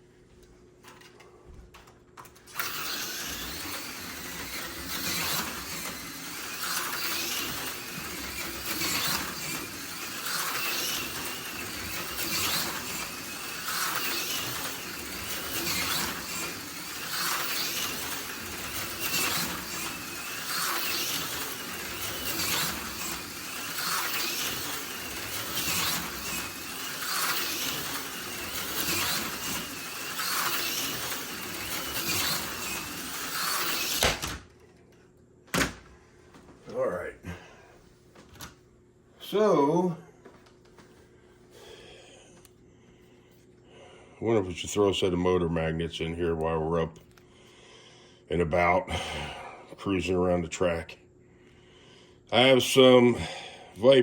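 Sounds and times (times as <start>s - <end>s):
slot car motor whining: 2.2s - 34.5s
slot car hissing along rails: 2.6s - 34.0s.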